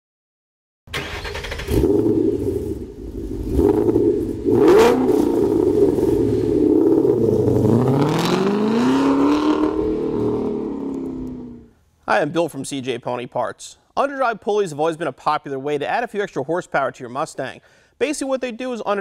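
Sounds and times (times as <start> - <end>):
car engine revving: 1.0 - 11.7.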